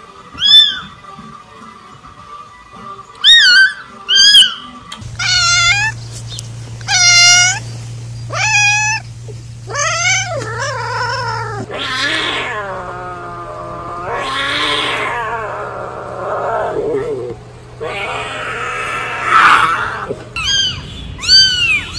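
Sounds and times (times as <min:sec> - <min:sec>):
cat meowing and yowling: 0:00.4 - 0:00.9, 0:03.2 - 0:06.0, 0:06.8 - 0:07.6, 0:08.3 - 0:09.0, 0:09.7 - 0:21.9
steady low hum: 0:05.0 - 0:20.4.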